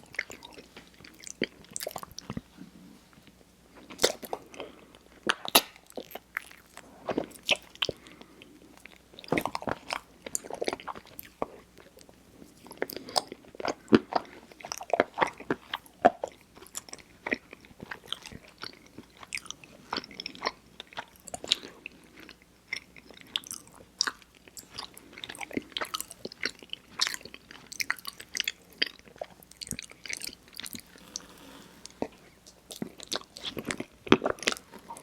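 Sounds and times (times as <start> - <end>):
person chewing sticky food: 0.0 - 35.0.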